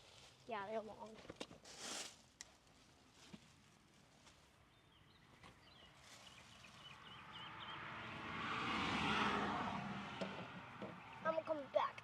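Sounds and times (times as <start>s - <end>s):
bird chirping: 4.7s - 7.9s
vehicle noise: 5.5s - 12.0s.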